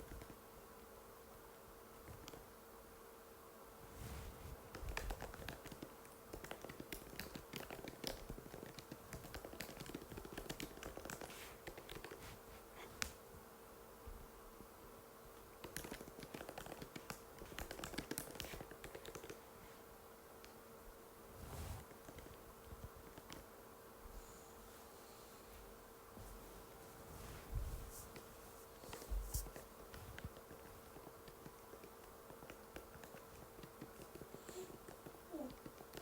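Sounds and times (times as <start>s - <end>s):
laptop keyboard typing clicks: 4.7s - 12.2s, 15.6s - 19.4s.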